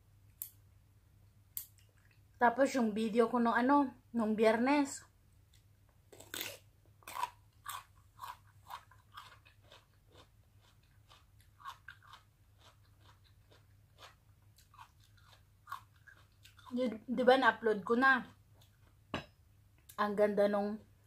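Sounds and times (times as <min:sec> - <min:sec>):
person chewing raw radish: 0:05.5 - 0:16.8, 0:18.3 - 0:19.1.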